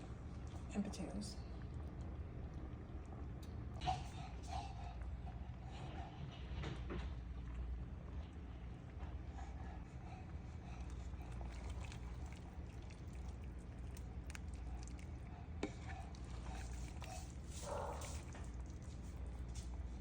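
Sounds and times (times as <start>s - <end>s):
soup bubbling in a pot: 1.5s - 3.8s, 10.2s - 20.0s.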